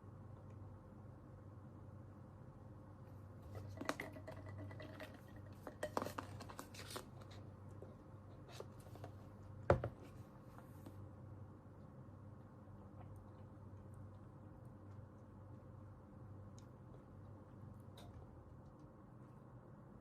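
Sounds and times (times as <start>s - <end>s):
knock on desk: 9.7s - 10.0s.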